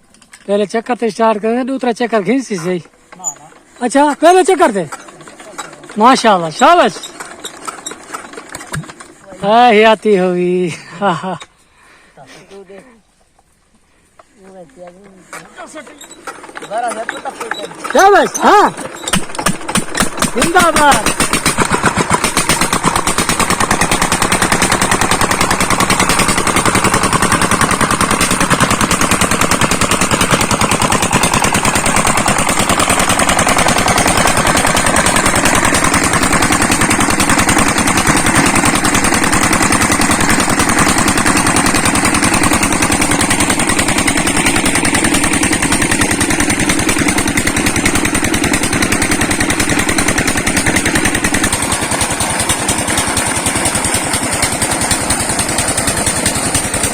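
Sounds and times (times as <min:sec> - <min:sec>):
diesel engine knocking: 0:16.1 - 0:56.9.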